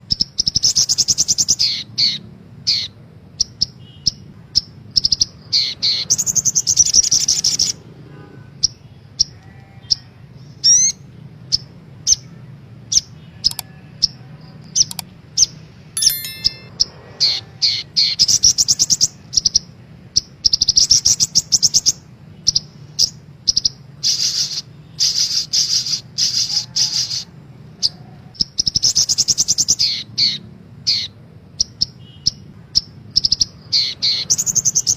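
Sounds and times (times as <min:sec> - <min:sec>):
sunbirds singing high trills: 0:20.5 - 0:34.9.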